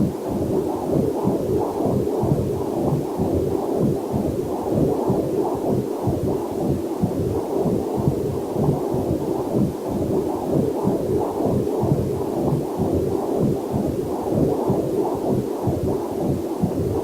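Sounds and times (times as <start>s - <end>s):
doppler heartbeat whooshing pulse: 0.0s - 17.0s.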